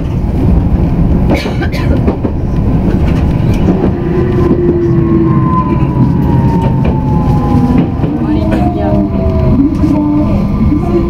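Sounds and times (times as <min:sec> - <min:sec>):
wheels rumbling on rail: 0:00.0 - 0:11.0
descending whine: 0:02.4 - 0:11.0.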